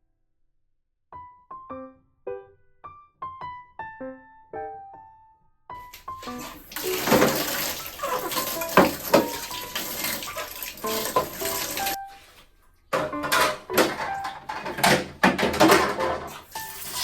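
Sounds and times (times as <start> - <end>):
tap water running into sink: 5.8 - 12.4, 13.0 - 17.0
dishes clinking: 13.0 - 16.5.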